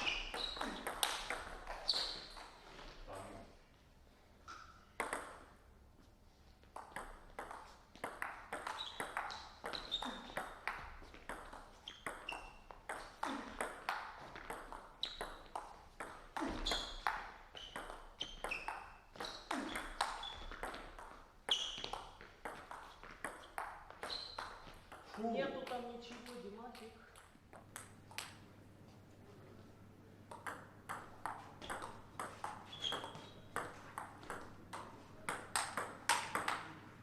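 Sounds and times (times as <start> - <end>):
table tennis ball hits: 0.0 - 1.9, 4.5 - 5.5, 6.8 - 25.2, 30.3 - 36.8.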